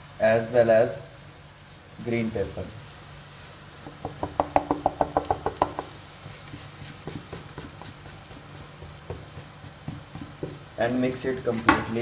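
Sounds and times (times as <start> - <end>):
utensil tapping a pan: 3.8 - 12.0.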